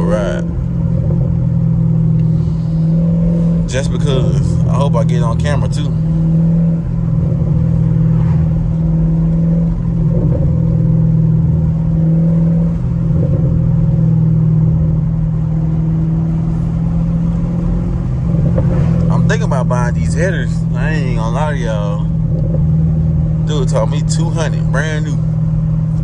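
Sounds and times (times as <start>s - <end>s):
car exhaust droning: 0.0s - 26.0s.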